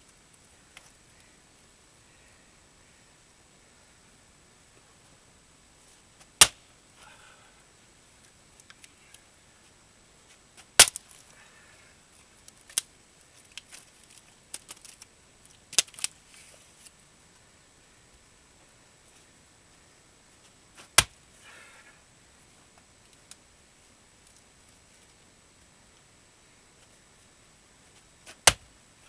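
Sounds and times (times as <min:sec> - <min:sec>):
axe splitting wood: 0:10.8 - 0:11.0, 0:28.3 - 0:28.7.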